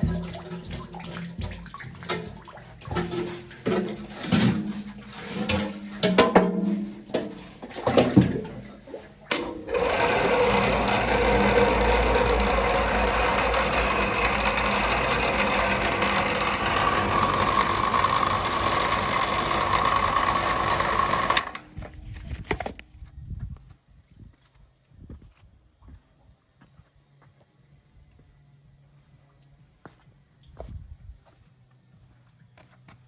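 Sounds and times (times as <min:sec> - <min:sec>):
small motor running: 0:09.7 - 0:21.7.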